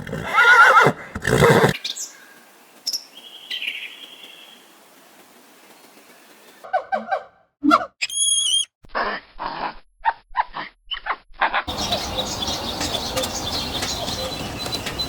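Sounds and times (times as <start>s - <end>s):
steady outdoor hiss: 0.0s - 6.8s, 11.7s - 15.0s
high chirps: 7.6s - 8.7s.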